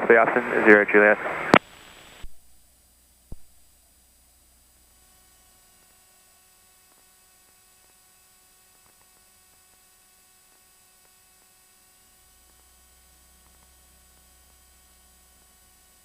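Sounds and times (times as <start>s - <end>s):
faint hiss and hum: 0.0s - 16.0s.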